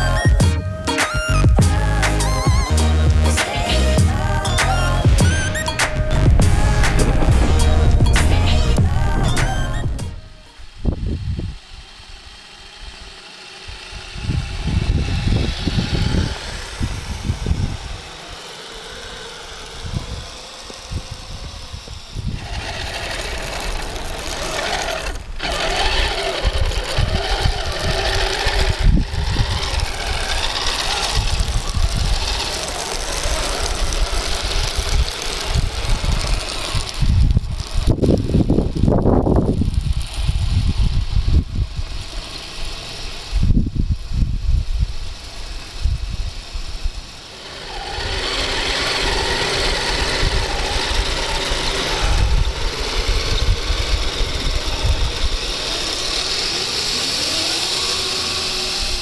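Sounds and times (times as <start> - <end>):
model vehicle motor whining: 0.0 - 59.0
low rumbles and thumps: 5.1 - 10.4.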